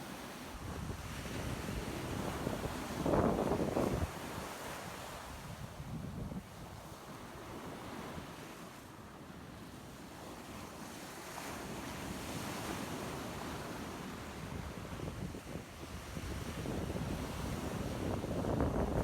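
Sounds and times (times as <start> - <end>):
surf washing on sandy beach: 0.0 - 19.0
wind buffeting microphone: 14.8 - 19.0.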